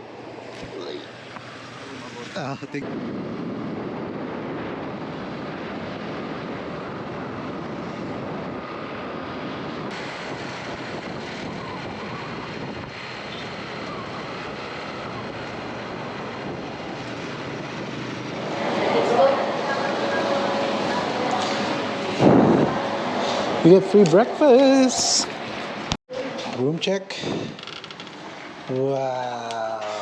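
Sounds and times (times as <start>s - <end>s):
wind buffeting microphone: 0.0s - 26.0s, 27.2s - 27.6s
moving vehicle rushing noise: 2.8s - 26.0s.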